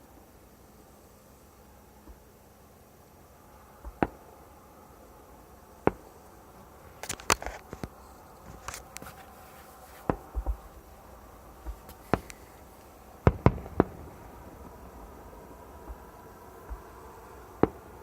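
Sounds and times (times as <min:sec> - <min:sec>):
fireworks bangs: 0:05.8 - 0:06.1, 0:10.0 - 0:18.0
fireworks popping and crackling: 0:06.9 - 0:18.0.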